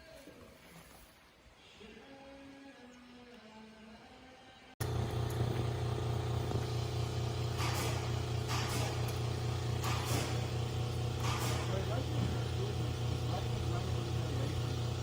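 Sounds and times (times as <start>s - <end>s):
engine humming: 4.8s - 15.0s.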